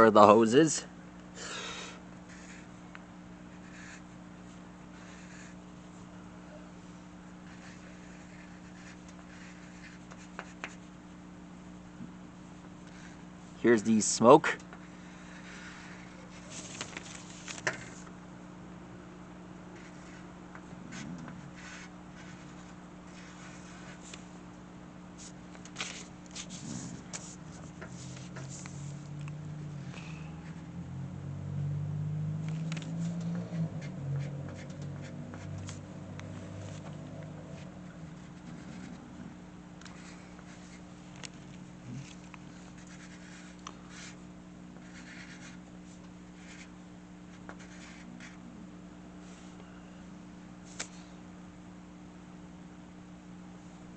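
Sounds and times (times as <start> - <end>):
steady low hum: 0.0 - 53.9
drawing tool scratching on paper: 3.5 - 4.2, 4.9 - 5.6, 7.5 - 10.9, 20.9 - 24.1, 37.6 - 39.0, 42.0 - 44.2, 44.8 - 45.6, 47.3 - 48.4.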